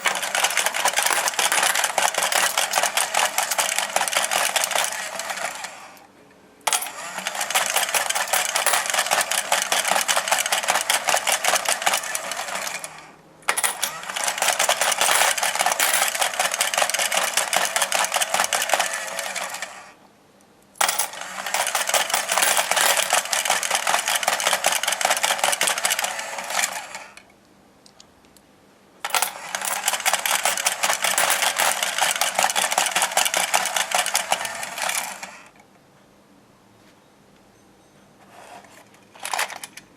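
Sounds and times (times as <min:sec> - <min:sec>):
toy motor rattling and clicking: 0:00.0 - 0:05.9, 0:06.7 - 0:19.8, 0:20.9 - 0:27.0, 0:29.0 - 0:35.4.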